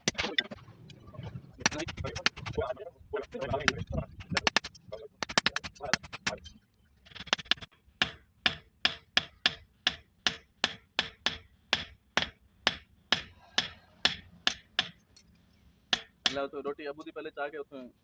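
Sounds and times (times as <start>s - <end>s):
hammer striking metal: 3.3s - 6.4s, 7.1s - 15.1s, 15.9s - 16.6s.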